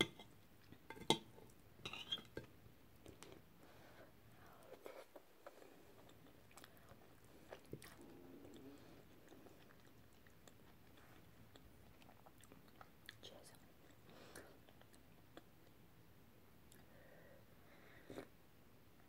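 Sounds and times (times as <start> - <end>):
chewing food: 5.0 - 15.8.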